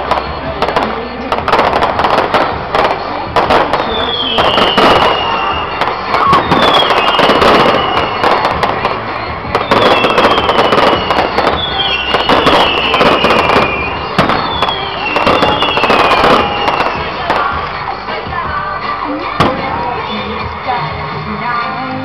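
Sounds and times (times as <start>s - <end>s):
fireworks bangs and crackling: 0.0s - 22.0s
firework whistle falling in pitch: 3.8s - 8.6s, 9.6s - 17.3s.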